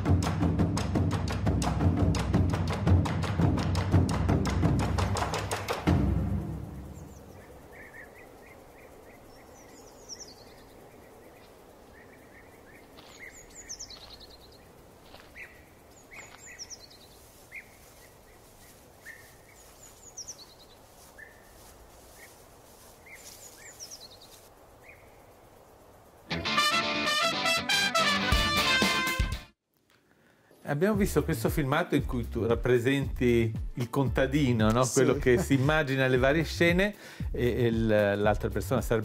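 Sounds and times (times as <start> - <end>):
outdoor background hiss: 0.0 - 39.0
birds singing: 6.3 - 22.4, 23.0 - 25.8.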